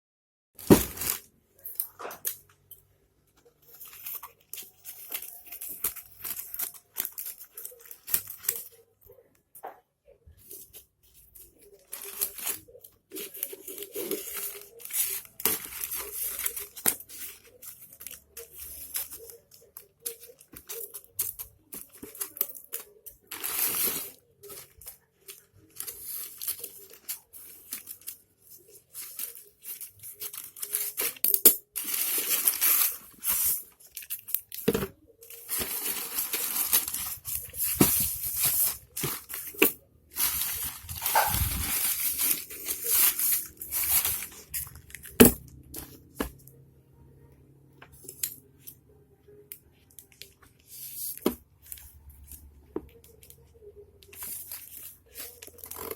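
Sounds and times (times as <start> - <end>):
plastic packaging torn and crinkled: 3.7 - 8.8, 11.4 - 46.4, 54.0 - 55.9.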